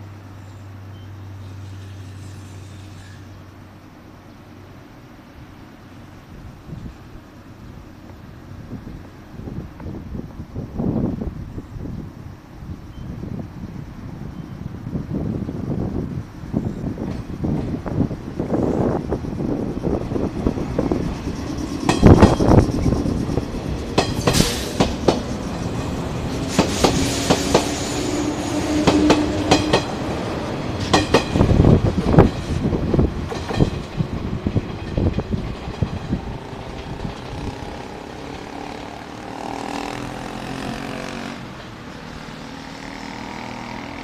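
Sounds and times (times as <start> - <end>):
train rumbling: 0.0 - 44.0
train wheels clacking over rail joints: 20.6 - 30.0, 30.7 - 41.7.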